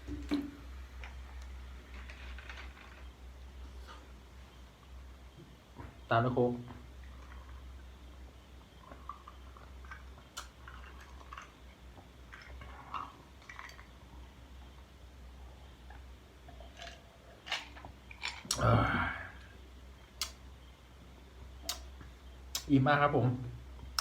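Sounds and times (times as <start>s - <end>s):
mouth clicks: 21.6s - 21.9s, 22.5s - 22.7s.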